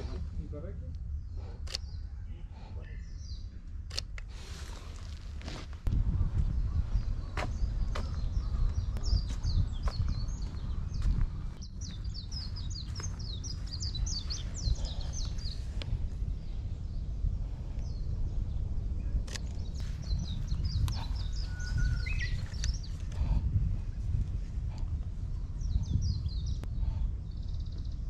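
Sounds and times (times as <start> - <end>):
wind rumble on microphone: 0.0 - 28.0
sharp clicks: 1.6 - 2.0, 3.8 - 4.3, 22.5 - 23.2
small bird chirping: 6.6 - 15.8, 19.3 - 23.1.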